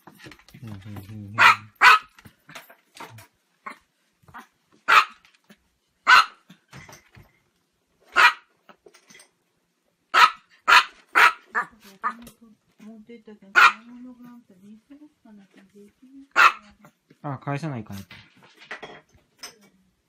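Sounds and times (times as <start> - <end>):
small dog barking: 1.4 - 2.1, 4.4 - 5.2, 6.0 - 6.4, 8.1 - 8.5, 10.1 - 12.2, 13.6 - 13.9, 16.3 - 16.9.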